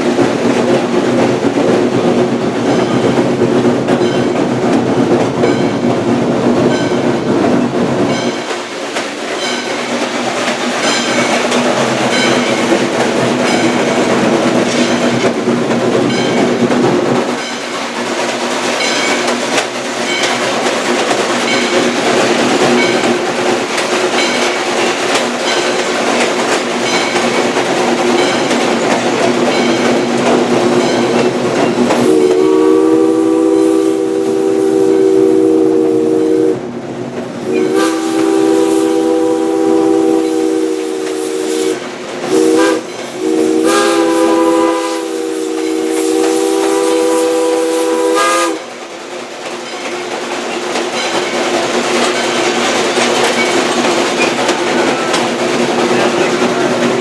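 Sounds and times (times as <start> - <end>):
train wheels clicking over rail joints: 0.0 - 57.0
steam whistle chord: 32.0 - 36.6, 37.5 - 48.6.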